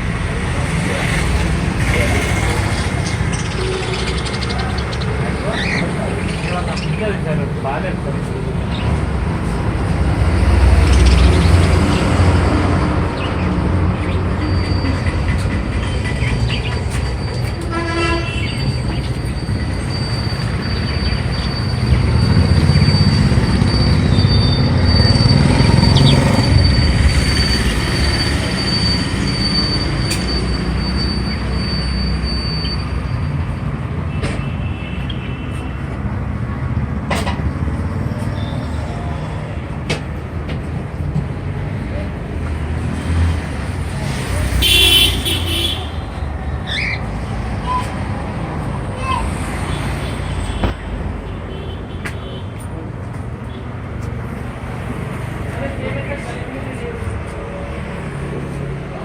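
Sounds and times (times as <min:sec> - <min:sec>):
high wheel squeal: 0:00.4 - 0:07.2, 0:13.2 - 0:35.8, 0:38.0 - 0:39.6, 0:43.8 - 0:50.6
train rumbling past: 0:09.4 - 0:20.7.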